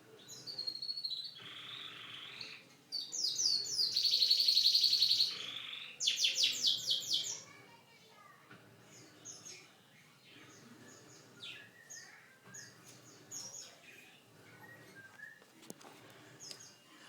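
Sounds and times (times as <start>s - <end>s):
canary chirping and whistling: 0.5s - 7.4s.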